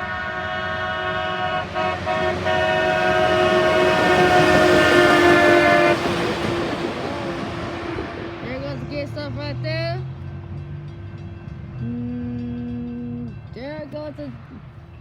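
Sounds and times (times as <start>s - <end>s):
train air horn: 0.0s - 7.0s.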